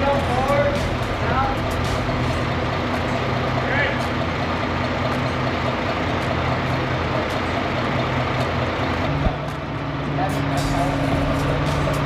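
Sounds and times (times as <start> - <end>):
engine knock: 0.0 - 9.6
vehicle engine running: 0.0 - 12.0.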